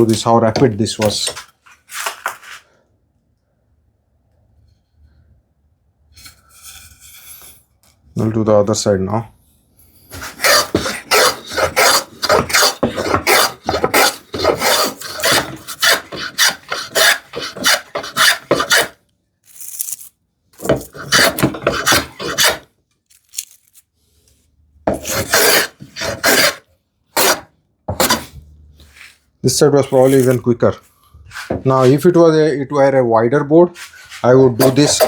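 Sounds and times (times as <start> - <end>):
hand plane rasping strokes: 10.1 - 19.0, 20.6 - 22.6, 24.9 - 26.6, 27.2 - 29.2.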